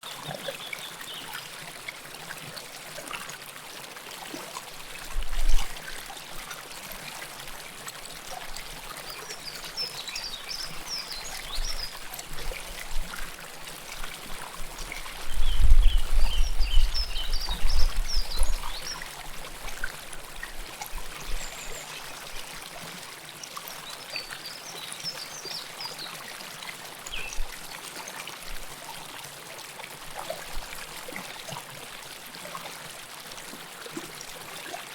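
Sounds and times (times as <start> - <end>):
river water flowing and trickling: 0.0 - 34.9.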